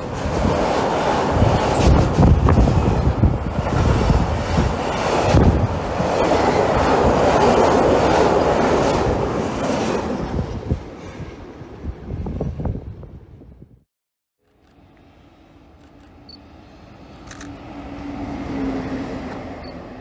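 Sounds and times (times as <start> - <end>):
train wheels rumbling on rails: 0.0 - 12.9.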